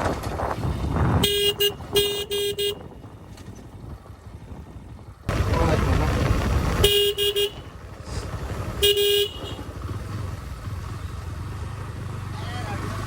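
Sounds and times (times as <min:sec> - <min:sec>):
road and engine rumble: 0:00.0 - 0:13.0
vehicle horn honking: 0:01.2 - 0:02.9, 0:06.8 - 0:07.7, 0:08.8 - 0:09.7.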